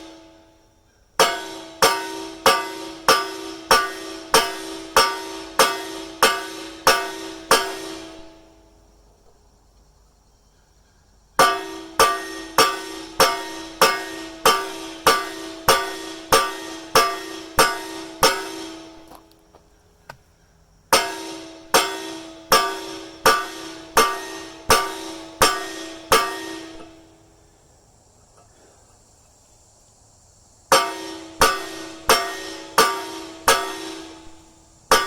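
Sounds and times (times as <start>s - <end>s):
heavy hammer blows on steel: 1.2s - 8.7s, 11.4s - 19.4s, 21.0s - 27.4s, 30.7s - 35.0s.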